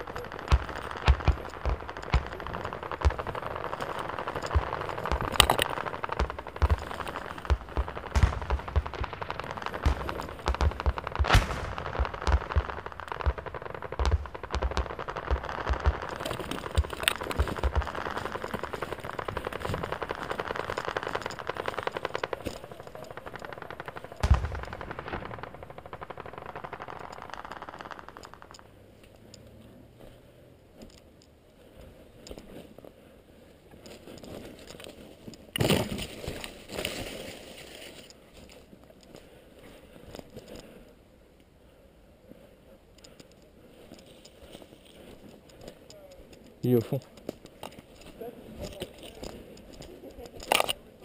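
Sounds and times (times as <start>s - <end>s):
airsoft guns firing bursts: 0.0s - 28.4s
loud sharp crack: 0.0s - 28.7s.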